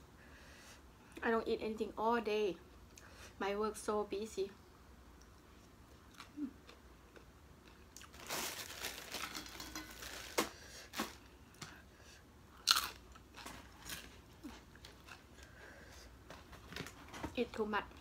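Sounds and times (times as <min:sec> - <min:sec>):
person chewing crunchy food: 0:12.6 - 0:15.6.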